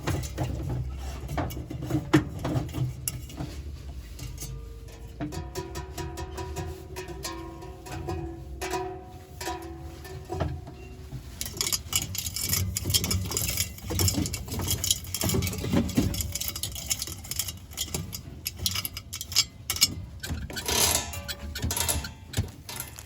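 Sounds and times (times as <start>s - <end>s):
rustling and crinkling packaging: 6.3s - 23.0s.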